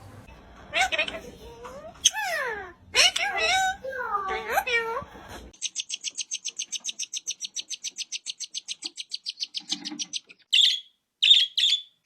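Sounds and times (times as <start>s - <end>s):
small bird chirping: 5.5s - 12.0s.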